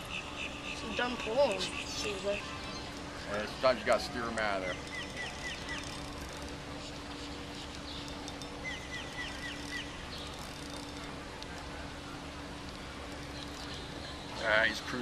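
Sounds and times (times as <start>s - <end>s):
bird chirping: 0.0s - 11.1s
steady low hum: 0.0s - 15.0s.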